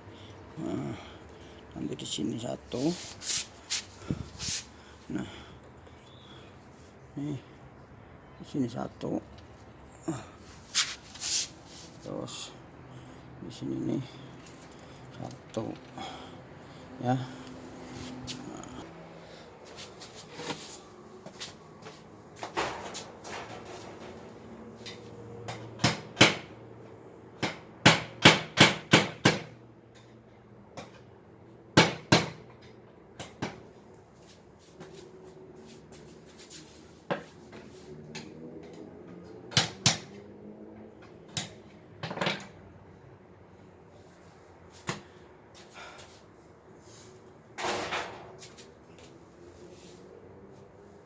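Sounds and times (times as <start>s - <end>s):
hammer knocking nails into wood: 27.4s - 29.5s, 31.8s - 32.4s.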